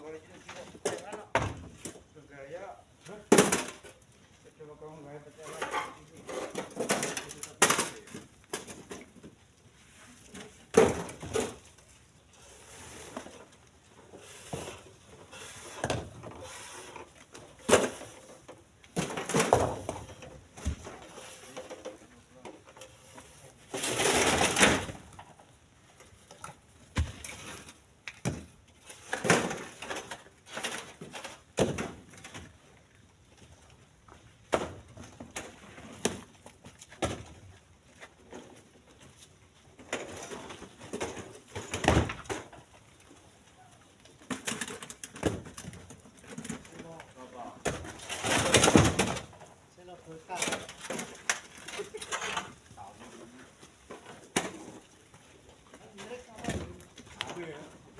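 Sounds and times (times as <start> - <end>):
stones clattering into truck bed: 5.5 - 9.2, 47.6 - 49.4.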